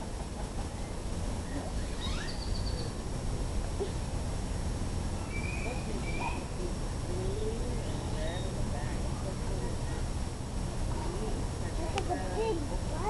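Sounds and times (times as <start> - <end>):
faint distant voices: 0.0 - 13.0
steady low rumble: 0.0 - 13.0
bird chirps: 1.5 - 3.0, 5.2 - 6.6
bird trill: 1.8 - 3.0, 5.2 - 6.5.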